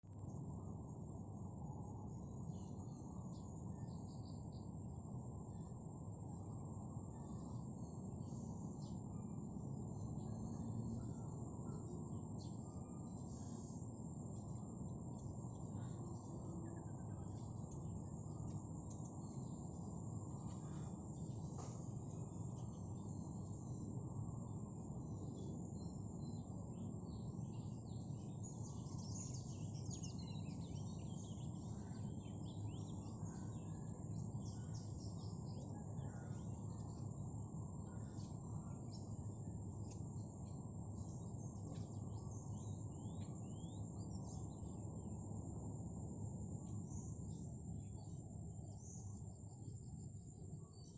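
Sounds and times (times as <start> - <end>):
low background hiss: 0.1 - 50.9
small birds chirping: 6.6 - 45.8.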